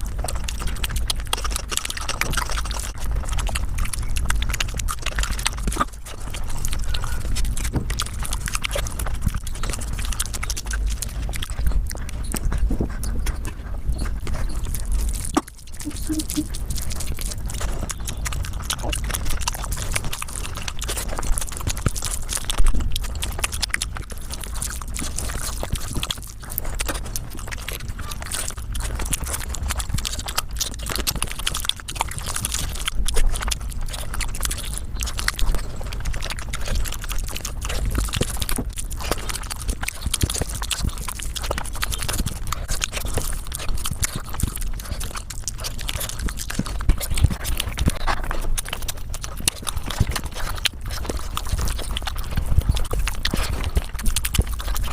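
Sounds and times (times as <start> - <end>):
sped-up chewing and smacking: 0.0 - 54.9.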